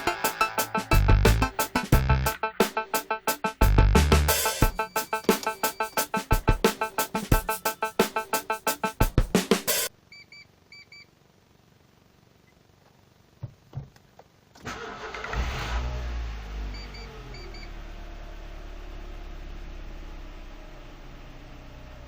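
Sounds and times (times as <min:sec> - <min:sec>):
car engine starting and idling: 0:14.6 - 0:22.0.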